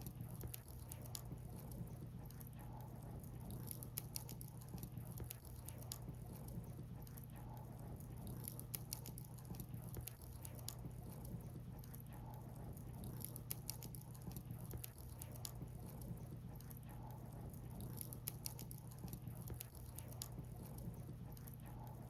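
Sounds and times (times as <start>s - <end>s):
firewood crackling and popping: 3.2s - 7.2s, 12.7s - 21.6s.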